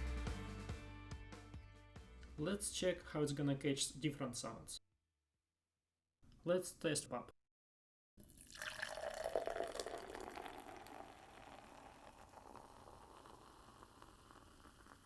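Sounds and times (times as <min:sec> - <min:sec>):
soda fizzing: 0:08.2 - 0:15.0.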